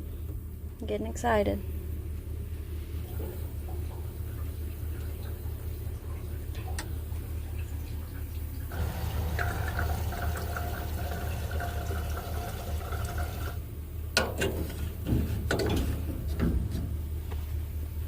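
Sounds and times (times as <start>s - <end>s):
gasoline pouring: 3.0s - 13.7s
sharp knocks and clunks: 14.2s - 17.0s.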